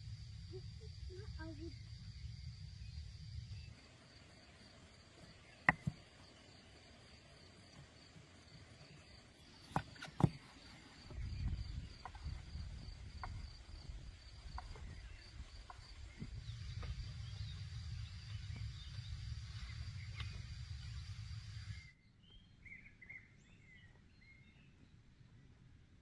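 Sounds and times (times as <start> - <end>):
low rumble: 0.0 - 3.8, 11.2 - 21.8
crickets chirping: 0.0 - 22.0
sharp knocks: 5.6 - 6.0.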